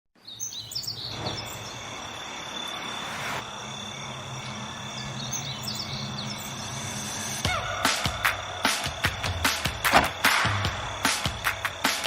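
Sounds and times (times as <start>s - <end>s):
bird chirps: 0.2s - 8.8s
insects trilling: 0.2s - 12.0s.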